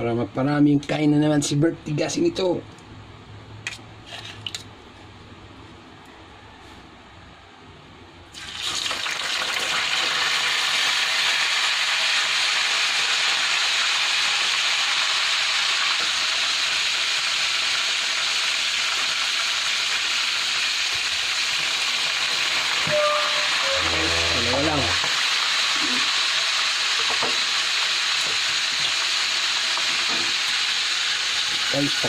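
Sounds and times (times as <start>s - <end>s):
chicken frying in hot oil: 8.3s - 32.0s.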